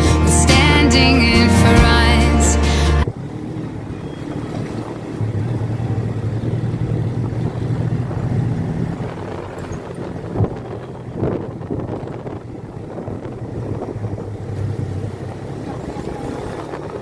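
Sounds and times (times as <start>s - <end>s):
music with singing: 0.0s - 3.1s
motorcycle engine running: 0.0s - 17.0s.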